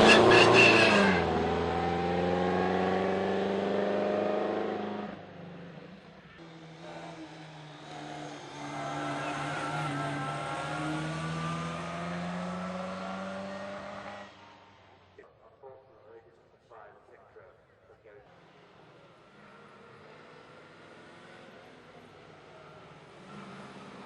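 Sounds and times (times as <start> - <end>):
racing car engine accelerating: 0.0 - 5.8, 6.4 - 15.2, 18.3 - 24.0.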